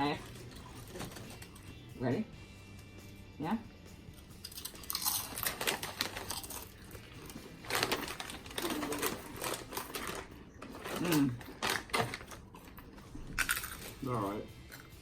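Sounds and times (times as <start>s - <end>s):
people crunching crisp chips: 4.2s - 15.0s.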